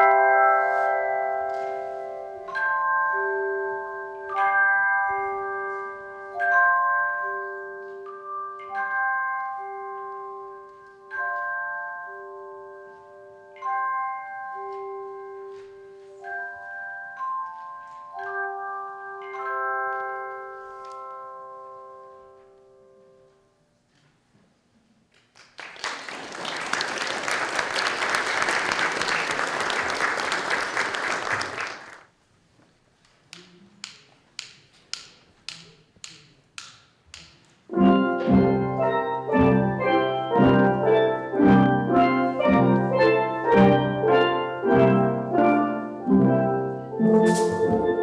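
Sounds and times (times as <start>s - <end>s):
audience applause: 25.4s - 32.1s
drumstick clicks: 33.3s - 37.6s
steel drum band playing: 37.7s - 48.0s.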